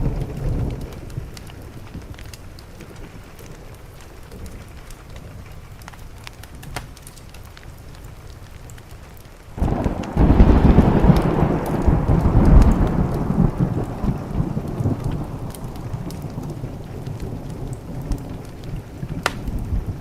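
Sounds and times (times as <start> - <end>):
thunder clap rolling: 0.0 - 5.4, 9.6 - 20.0
faint wood fire crackling: 0.0 - 20.0
rain against a window: 0.0 - 20.0.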